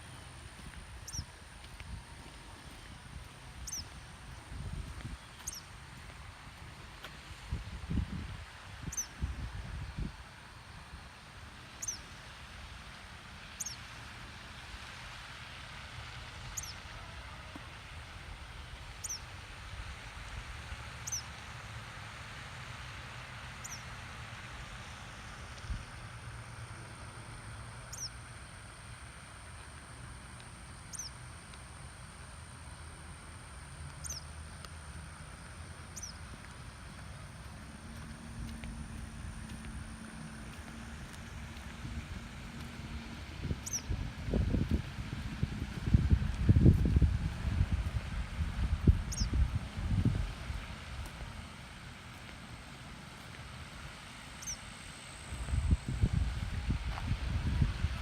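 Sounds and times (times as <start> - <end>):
wind rumble: 0.0 - 6.8, 35.9 - 58.0
footsteps walking: 0.0 - 7.2, 34.5 - 54.0, 55.3 - 58.0
steady outdoor hiss: 0.0 - 58.0.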